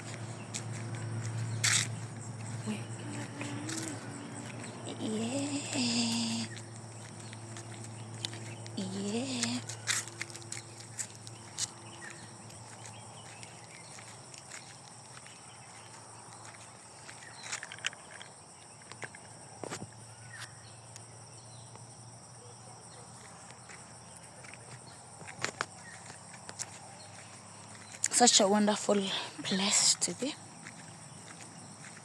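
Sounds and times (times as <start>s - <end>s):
footsteps: 0.0s - 18.3s, 23.2s - 32.0s
high-pitched insect chirring: 0.5s - 12.8s.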